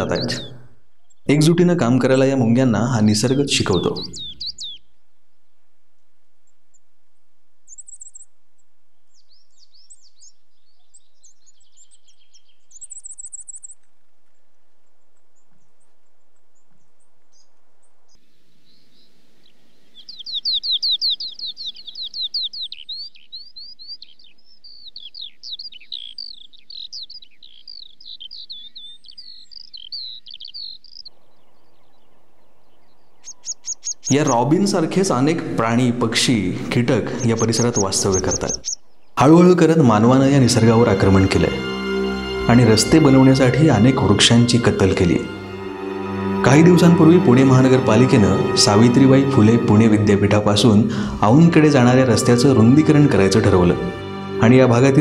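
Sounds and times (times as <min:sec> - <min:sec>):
songbird warbling: 0:00.0 - 0:01.5, 0:03.1 - 0:05.0, 0:18.2 - 0:43.2.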